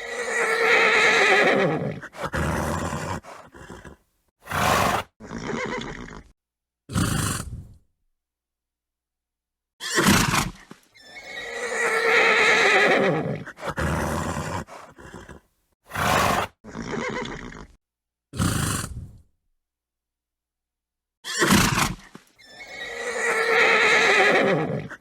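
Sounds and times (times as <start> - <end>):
horse snorting: 0.0 - 6.3, 6.9 - 7.8, 9.9 - 17.8, 18.4 - 19.2
horse whinnying: 0.0 - 6.3, 9.8 - 17.8, 21.2 - 25.0.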